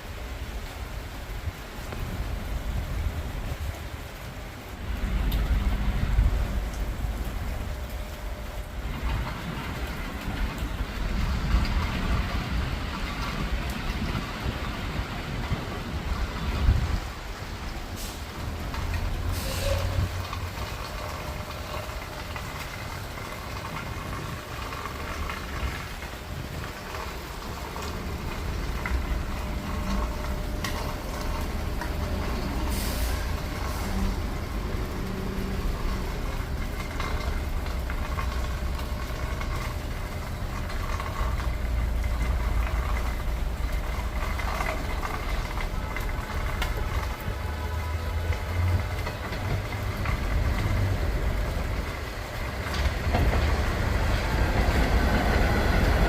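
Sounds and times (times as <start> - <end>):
air brake hisses: 19.4 - 19.9.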